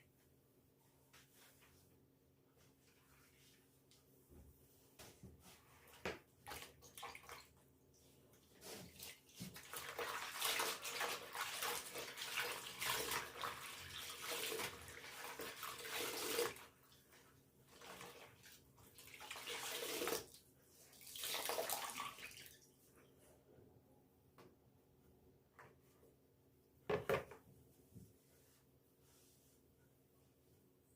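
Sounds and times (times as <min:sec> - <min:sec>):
water running from a tap: 0:09.6 - 0:16.6.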